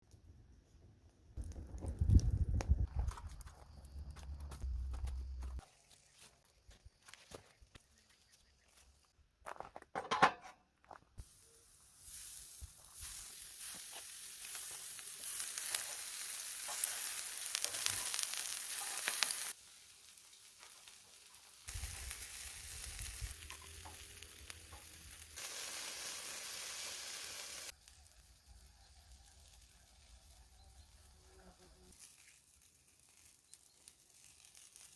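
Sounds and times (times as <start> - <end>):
gas barbecue fire sizzling: 1.4 - 2.8, 11.2 - 34.9.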